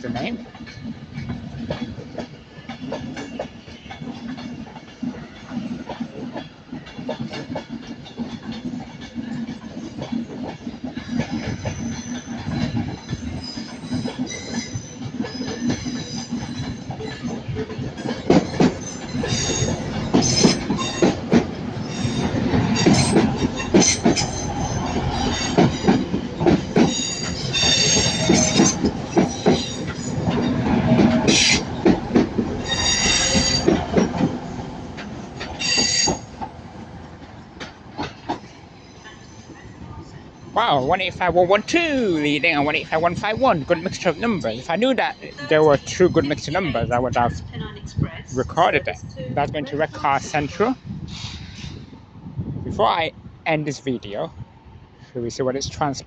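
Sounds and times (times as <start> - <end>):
train wheels running: 0.0 - 52.1
clicking over rail joints: 0.2 - 39.3
wheels squealing: 11.0 - 36.5.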